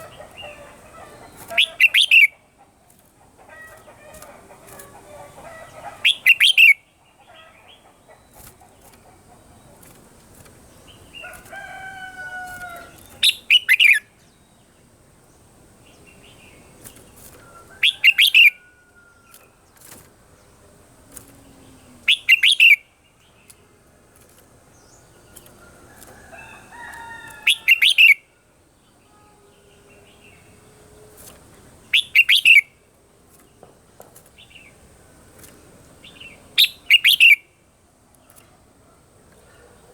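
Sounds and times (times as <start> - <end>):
bird gliding calls: 0.0 - 2.8
bird singing short loud phrases: 36.2 - 37.5.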